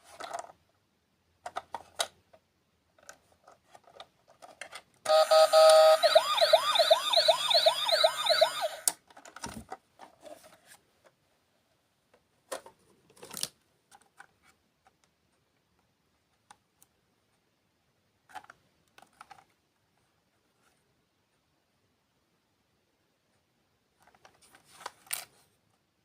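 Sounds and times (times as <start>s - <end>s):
electronic siren wailing: 5.1s - 8.9s.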